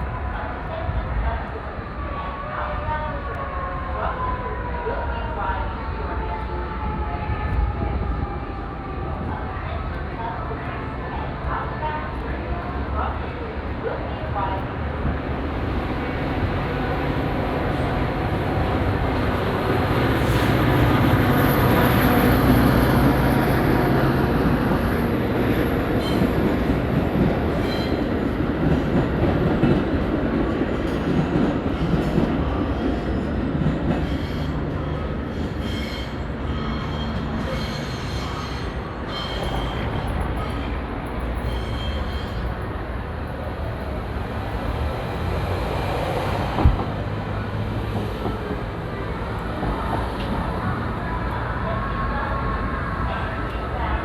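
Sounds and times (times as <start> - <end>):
train wheels rumbling and clattering: 6.2 - 51.7
high wheel squeals: 35.4 - 40.8, 41.4 - 42.6.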